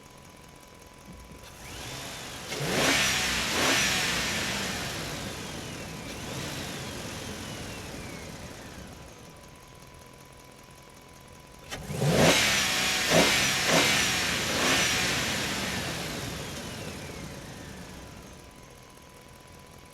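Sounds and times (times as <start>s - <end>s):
engine revving: 1.5s - 9.4s, 11.6s - 18.6s.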